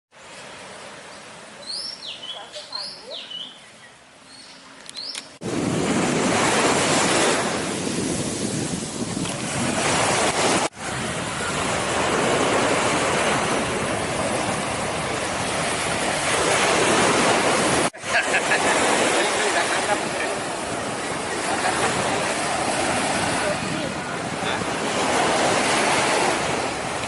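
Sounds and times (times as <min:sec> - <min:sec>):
wind buffeting microphone: 0:05.4 - 0:18.0, 0:18.8 - 0:27.0
surf washing on beach: 0:05.4 - 0:27.0.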